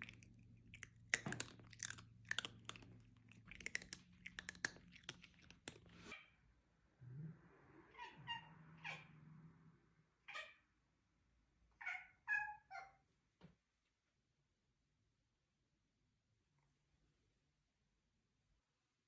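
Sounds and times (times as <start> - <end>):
crunchy chewing: 0.0 - 6.1.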